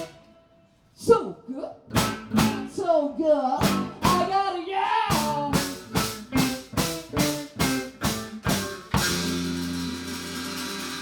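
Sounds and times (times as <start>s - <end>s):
full-band hits with drum kit: 1.9s - 2.8s, 3.6s - 4.4s, 5.1s - 11.0s.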